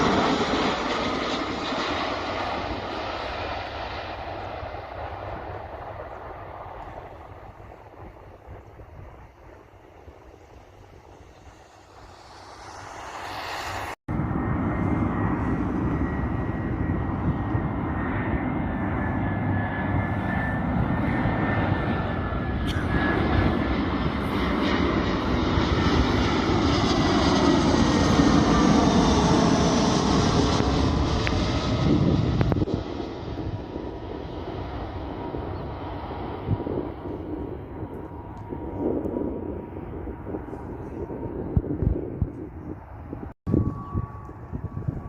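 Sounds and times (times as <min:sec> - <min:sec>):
airliner engines passing: 0:00.0 - 0:45.0
whining tones sliding down: 0:43.5 - 0:45.0.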